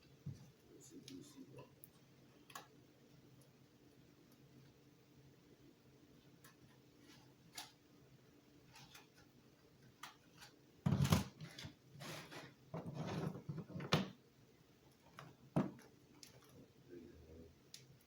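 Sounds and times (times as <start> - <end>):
light clicks of small parts: 17.7 - 18.0.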